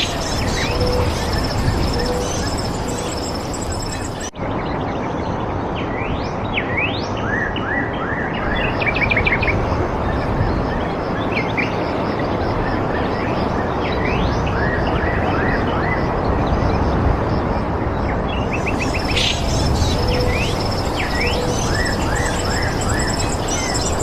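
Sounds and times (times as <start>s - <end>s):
birds chirping and calling: 0.0s - 4.3s, 18.5s - 24.0s
steady rushing background noise: 0.0s - 24.0s.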